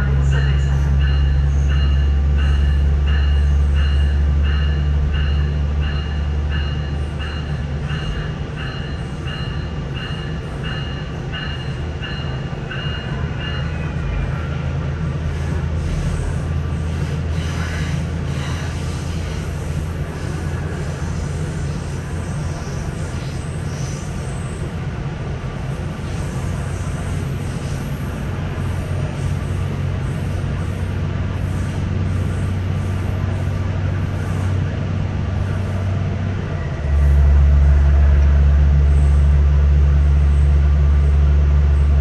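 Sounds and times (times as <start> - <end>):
grade-crossing bell dinging: 0.0 - 14.7
diesel train drone: 0.0 - 42.0.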